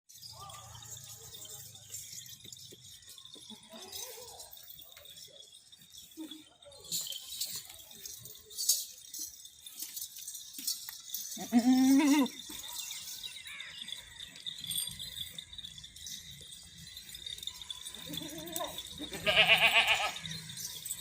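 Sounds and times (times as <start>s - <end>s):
goat bleating: 11.3s - 12.5s, 17.9s - 20.2s.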